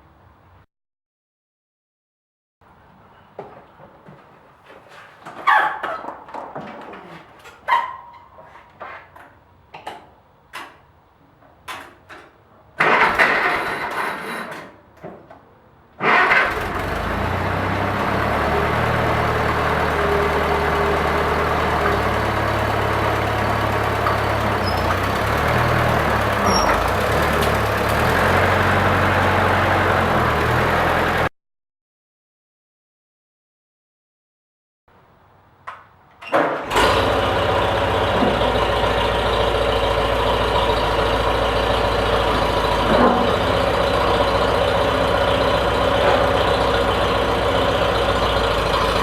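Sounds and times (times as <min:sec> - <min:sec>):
tractor engine running: 0:12.8 - 0:14.4, 0:16.0 - 0:31.3, 0:36.6 - 0:49.0
engine cranking: 0:12.8 - 0:14.7, 0:16.0 - 0:31.2, 0:36.4 - 0:49.0.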